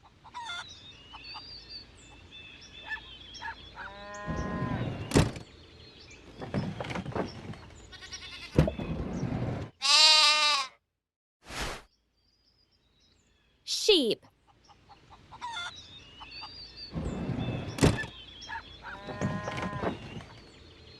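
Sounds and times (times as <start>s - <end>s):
farmyard noise: 0.0s - 9.0s, 9.6s - 10.8s, 13.7s - 20.9s
sheep bleating: 9.8s - 10.8s.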